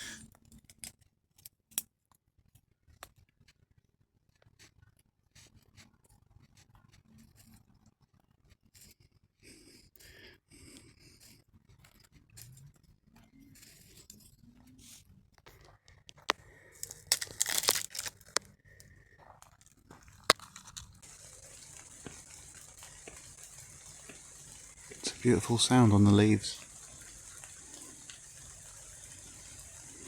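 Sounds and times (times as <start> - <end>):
twigs snapping and crumpling: 16.2 - 18.5, 19.4 - 25.1
loud crackling: 16.8 - 18.4, 20.0 - 30.0
rain on leaves: 16.8 - 18.4, 20.3 - 30.0.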